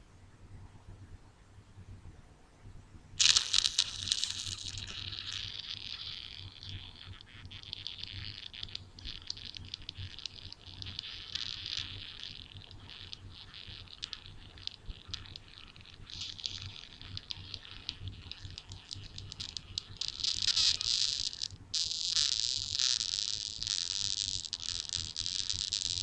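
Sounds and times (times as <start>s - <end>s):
crackling rubbing ear noises: 3.2s - 26.0s.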